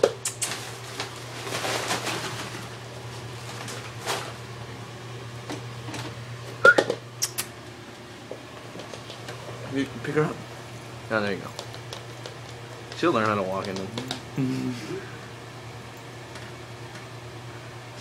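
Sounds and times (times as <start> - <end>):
steady low hum: 0.0 - 18.0
dog paws tapping on hard floor: 8.3 - 9.6, 11.4 - 14.2.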